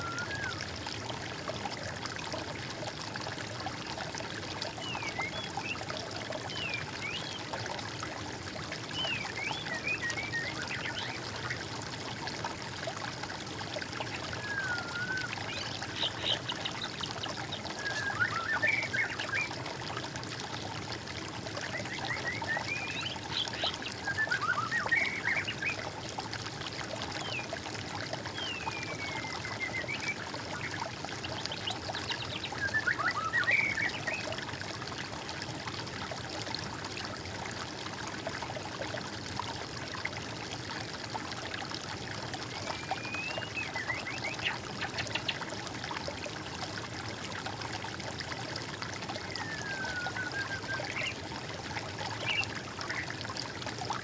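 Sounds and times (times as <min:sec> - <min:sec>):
trickling flowing water: 0:00.0 - 0:54.0
songbirds singing: 0:14.1 - 0:19.6, 0:42.5 - 0:45.5, 0:49.1 - 0:51.4, 0:52.0 - 0:53.2.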